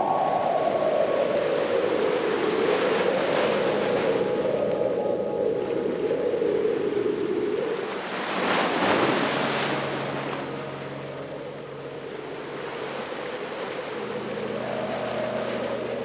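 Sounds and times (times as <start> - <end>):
ocean wave breaking on shore: 7.6 - 16.0.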